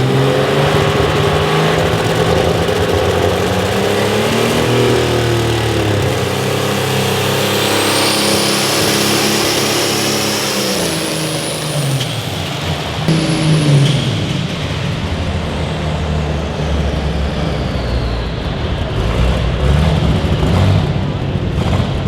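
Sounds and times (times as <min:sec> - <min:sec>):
vehicle engine running hard: 0:00.0 - 0:22.0
thin high whistle: 0:07.1 - 0:18.5.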